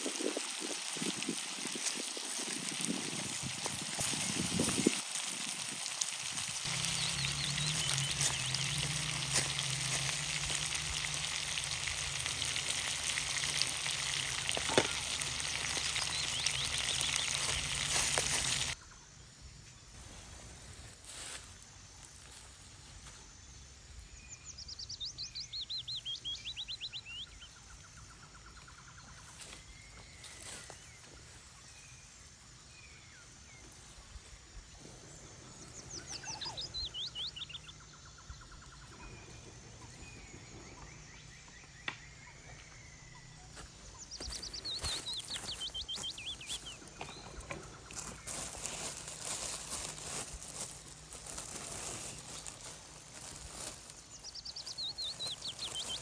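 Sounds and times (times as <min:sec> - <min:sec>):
songbird trilling: 0:13.5 - 0:18.8, 0:35.6 - 0:37.8, 0:43.9 - 0:48.4, 0:54.2 - 0:56.0.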